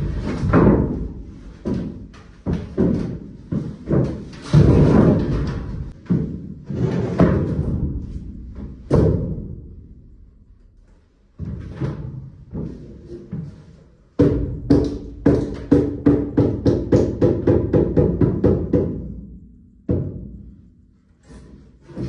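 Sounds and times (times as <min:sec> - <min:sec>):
heavy thuds and slams: 0:00.0 - 0:10.4.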